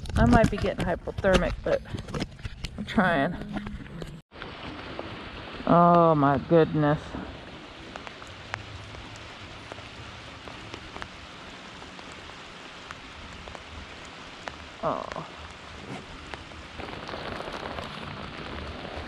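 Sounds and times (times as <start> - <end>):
rain falling on water: 4.3 - 19.0.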